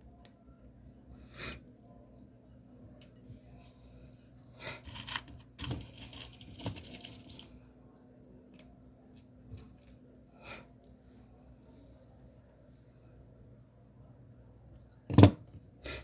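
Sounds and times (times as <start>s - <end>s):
rustling of beadwork materials: 4.3s - 7.6s.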